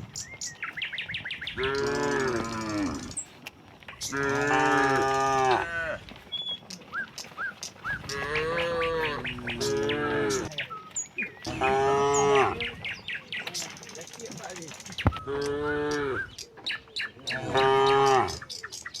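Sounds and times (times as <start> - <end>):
cattle mooing: 1.6 - 3.2, 4.0 - 6.1, 8.0 - 10.6, 11.4 - 12.8, 15.2 - 16.3, 17.2 - 18.4.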